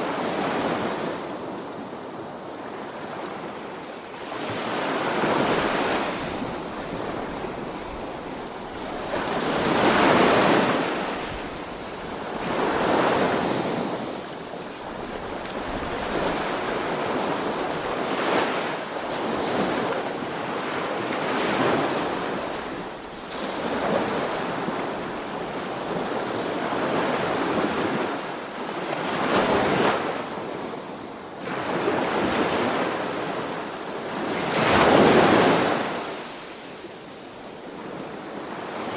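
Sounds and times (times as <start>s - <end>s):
wind on microphone: 0.0s - 28.3s
sea waves breaking on shore: 0.0s - 38.9s.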